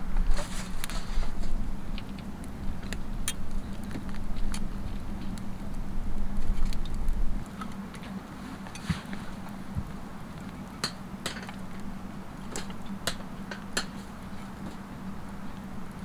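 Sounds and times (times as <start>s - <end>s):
low steady rumble and hum: 0.0s - 16.0s
campfire crackling and popping: 0.3s - 16.0s.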